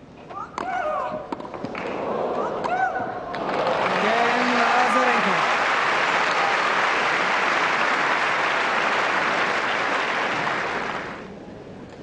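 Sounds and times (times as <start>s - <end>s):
crowd applauding: 3.4s - 11.3s.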